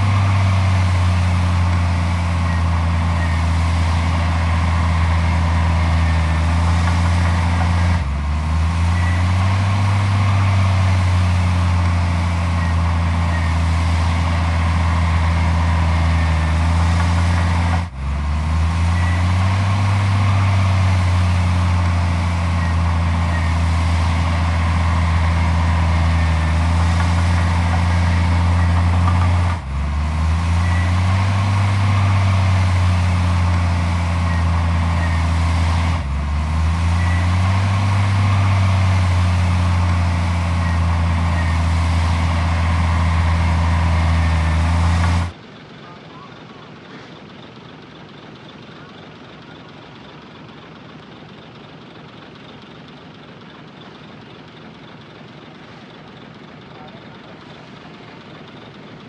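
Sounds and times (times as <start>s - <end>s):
heavy diesel machinery running: 0.0s - 45.4s.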